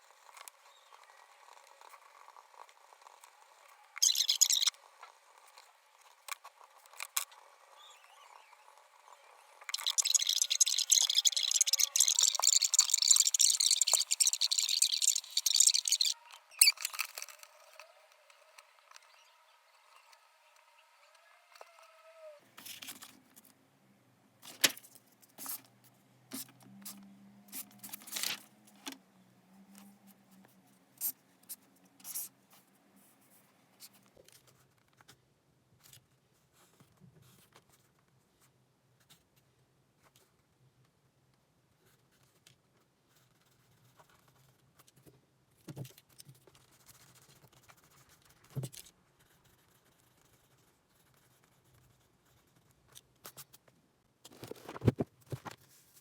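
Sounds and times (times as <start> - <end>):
paper rustling: 27.6 - 28.8, 54.3 - 56.0.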